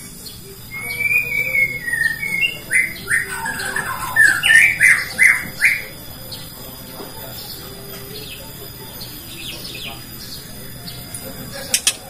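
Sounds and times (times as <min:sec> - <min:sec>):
bird singing whistles: 0:00.1 - 0:06.5.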